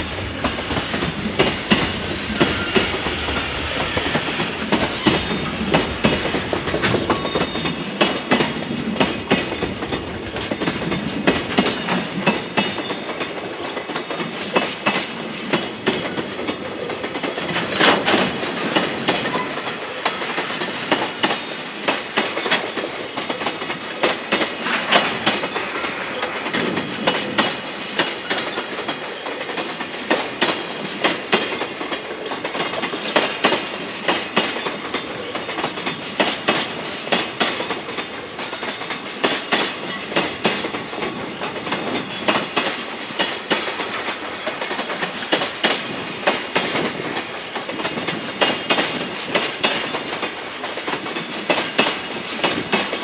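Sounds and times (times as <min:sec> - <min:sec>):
freight train rumble: 0:00.0 - 0:53.0
train wheels clattering over rail joints: 0:00.0 - 0:53.0.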